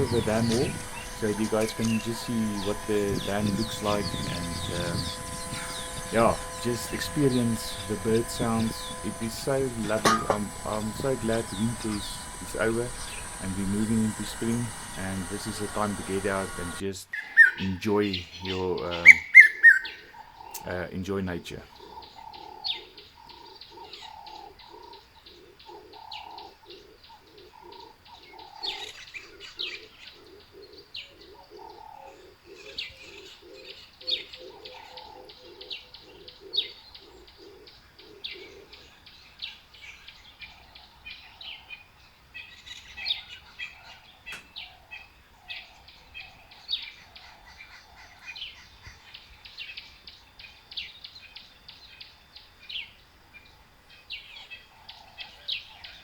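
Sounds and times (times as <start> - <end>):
low cooing bird: 0.0 - 20.9, 21.6 - 41.8
small birds chirping: 0.0 - 56.0.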